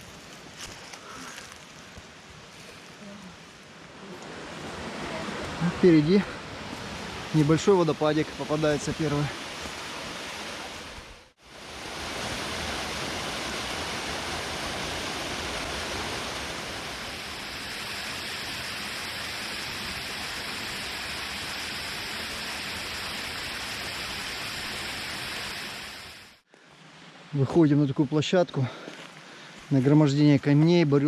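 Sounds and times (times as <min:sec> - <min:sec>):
small waterfall rushing: 0:03.4 - 0:27.3.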